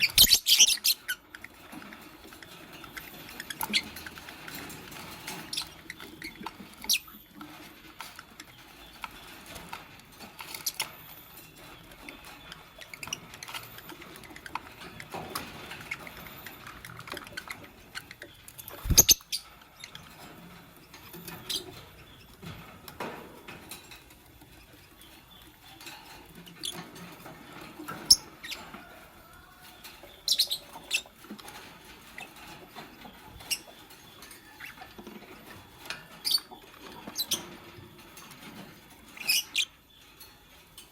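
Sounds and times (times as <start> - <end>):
bird chirps: 0.0 - 1.6, 10.4 - 20.0, 27.9 - 31.2
birds scratching and rustling in cage: 0.0 - 40.9.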